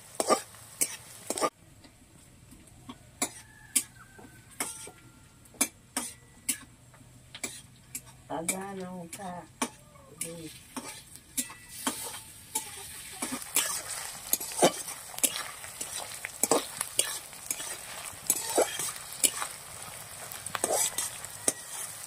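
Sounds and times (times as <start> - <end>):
onions sizzling in oil: 0.0 - 1.6, 7.4 - 22.0
metal spatula clinking on pan: 7.9 - 19.4.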